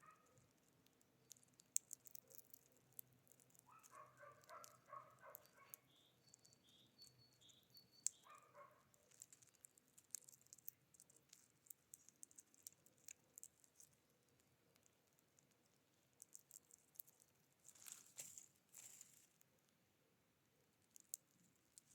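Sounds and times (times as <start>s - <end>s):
light ticks and clicks: 0.0s - 7.2s.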